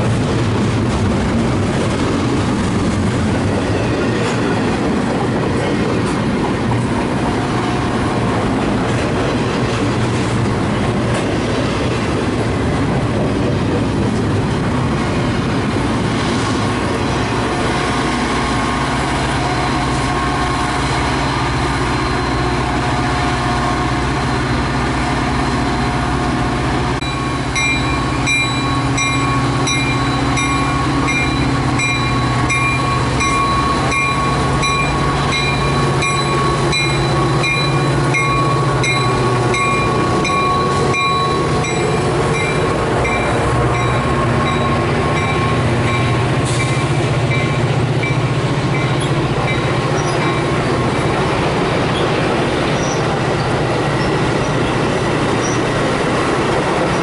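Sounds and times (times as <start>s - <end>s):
train rumbling on rails: 0.0s - 57.0s
crossing bell ringing: 27.0s - 50.8s.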